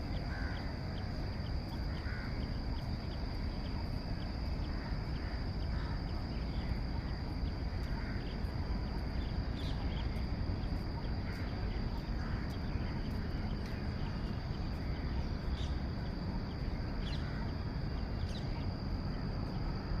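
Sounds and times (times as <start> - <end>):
high-pitched insect drone: 0.0 - 20.0
faint bird calls: 0.1 - 19.2.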